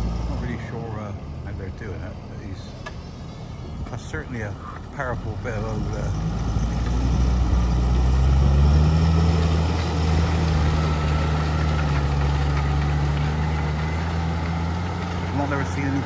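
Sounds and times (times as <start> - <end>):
tractor engine under load: 0.0 - 16.0.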